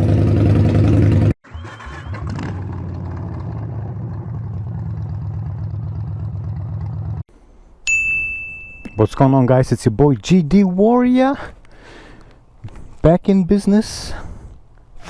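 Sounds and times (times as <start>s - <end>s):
motorcycle engine running: 0.0s - 1.4s, 2.2s - 7.2s.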